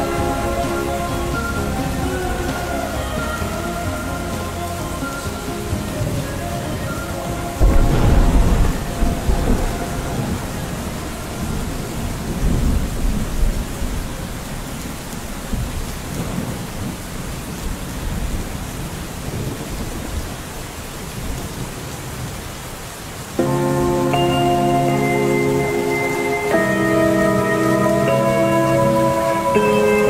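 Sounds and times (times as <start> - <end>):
steady rain: 0.0 - 30.0
rolling thunder rumble: 5.6 - 22.4.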